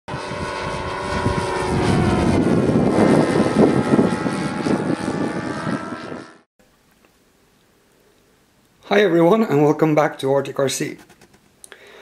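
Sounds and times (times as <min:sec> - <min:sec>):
model airplane engine running: 0:00.1 - 0:06.5.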